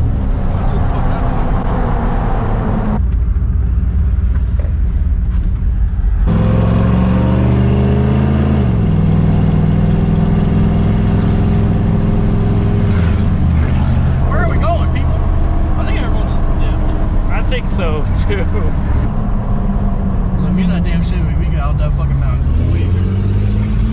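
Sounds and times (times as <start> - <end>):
vehicle engine accelerating: 0.0 - 23.9.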